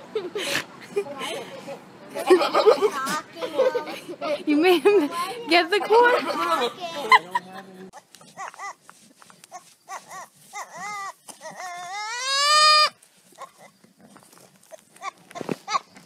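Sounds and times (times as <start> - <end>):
goat bleating: 9.5 - 13.8.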